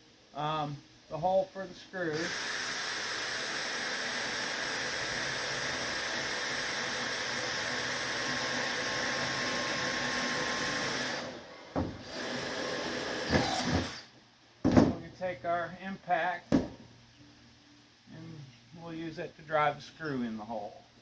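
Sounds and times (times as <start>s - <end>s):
power drill running: 2.1s - 14.1s.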